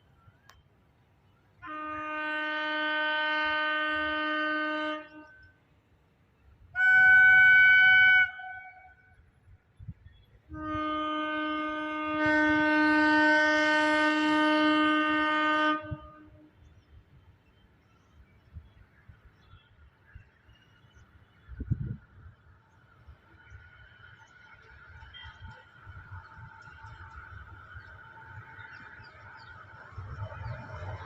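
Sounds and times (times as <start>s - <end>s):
locomotive air horn blasts: 1.6s - 5.4s, 6.8s - 9.2s, 10.5s - 16.5s.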